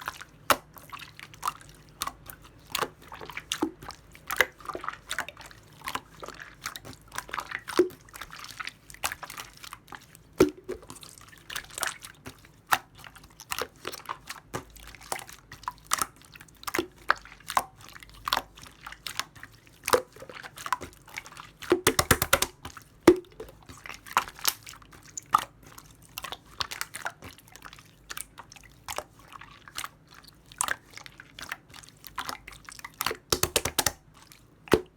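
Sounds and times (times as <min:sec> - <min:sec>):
slime squished by hand: 0:19.9 - 0:27.8, 0:31.4 - 0:34.1.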